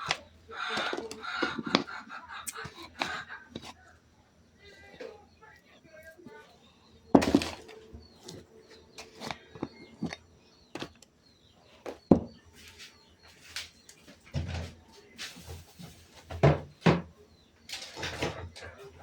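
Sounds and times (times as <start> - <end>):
objects knocking and clacking: 0.0 - 3.8, 7.1 - 11.2, 11.8 - 12.5.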